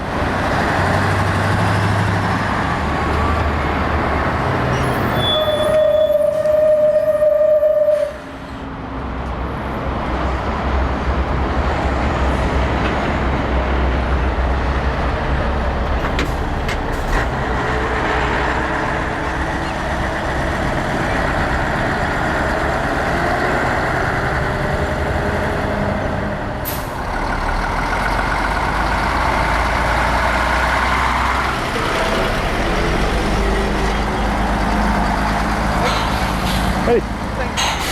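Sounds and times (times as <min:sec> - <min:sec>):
diesel truck engine rumbling: 0:00.0 - 0:37.9.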